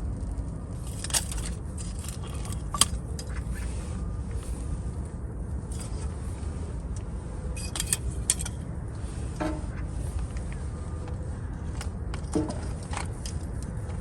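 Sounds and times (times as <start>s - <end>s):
steady low rumble: 0.0s - 14.0s
small objects clicking and scraping: 0.7s - 3.6s, 7.6s - 8.6s.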